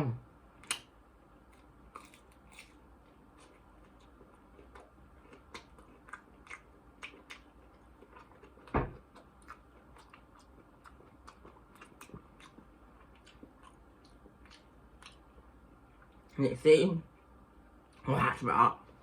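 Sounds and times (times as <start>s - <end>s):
crunching crispy food: 1.5s - 9.2s
loud dull thump: 8.7s - 9.0s.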